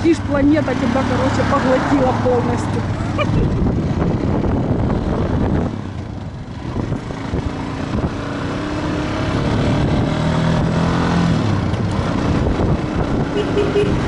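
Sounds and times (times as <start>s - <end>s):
motorcycle engine and exhaust: 0.0s - 14.0s
wind on microphone: 3.2s - 5.8s, 9.3s - 14.0s.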